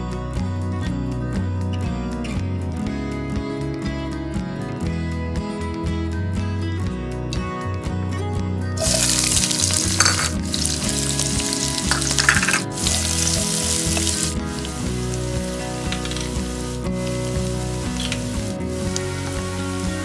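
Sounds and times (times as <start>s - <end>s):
shallots and garlic sizzling in oil: 8.8s - 20.0s.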